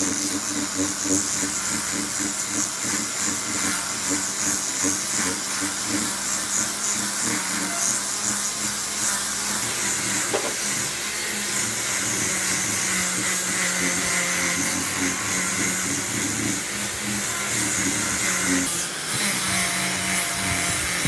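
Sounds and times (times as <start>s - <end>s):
workshop machine hissing: 0.0s - 21.0s
brief knock: 10.3s - 10.6s.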